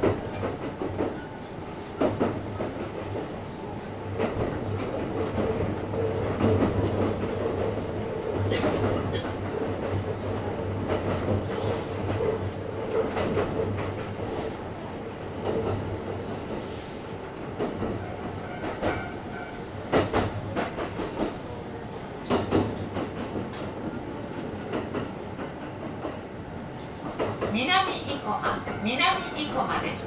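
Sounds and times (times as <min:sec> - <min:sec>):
rail-joint clicks: 0:16.6 - 0:21.4, 0:22.2 - 0:23.7, 0:24.3 - 0:26.2.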